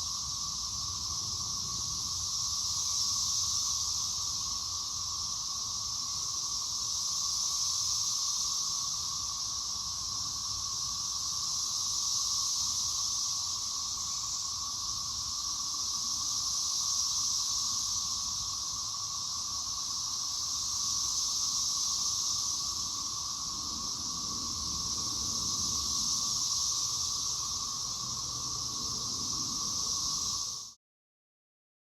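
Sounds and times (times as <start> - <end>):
cicadas droning: 0.0 - 30.8.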